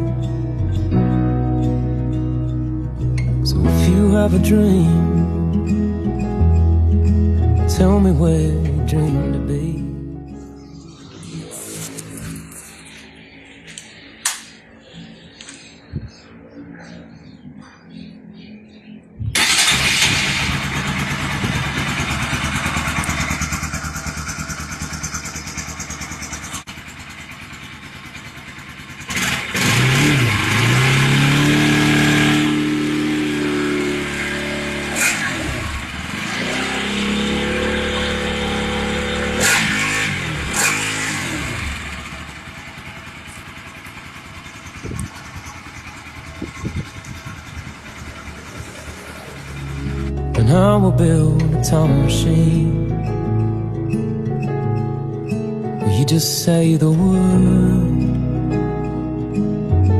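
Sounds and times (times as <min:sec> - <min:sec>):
motorcycle engine revving: 0:10.7 - 0:15.5, 0:19.3 - 0:50.9.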